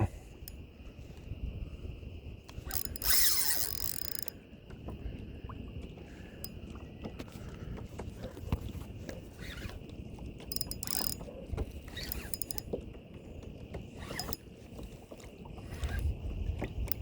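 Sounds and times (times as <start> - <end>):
water: 0.0 - 17.0
wind: 0.0 - 17.0
fishing reel clicking: 2.5 - 4.4, 10.5 - 11.2, 11.9 - 12.7, 14.0 - 14.4.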